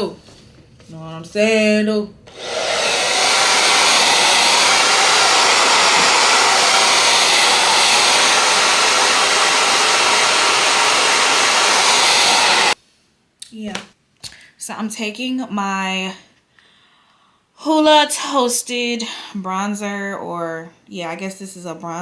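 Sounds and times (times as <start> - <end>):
hair dryer blowing: 2.3 - 12.8.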